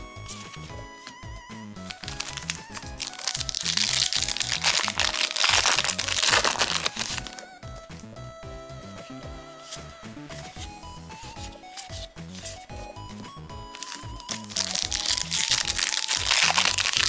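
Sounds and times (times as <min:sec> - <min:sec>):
foil wrapper crinkling and tearing: 0:00.0 - 0:07.6, 0:10.4 - 0:13.0, 0:13.6 - 0:17.0
background music: 0:00.0 - 0:17.0.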